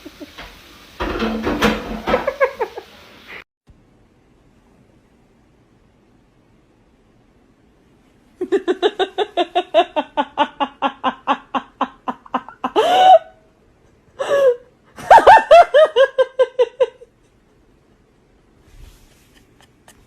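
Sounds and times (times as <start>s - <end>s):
person laughing heartily: 8.4s - 17.4s, 19.1s - 20.0s.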